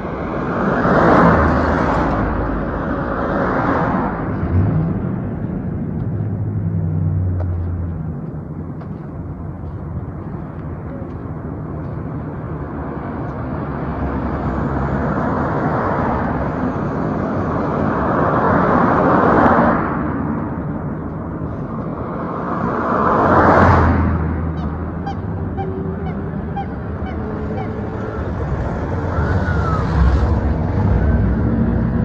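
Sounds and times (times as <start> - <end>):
low engine hum: 0.0 - 32.0
vehicle passing close: 12.4 - 32.0.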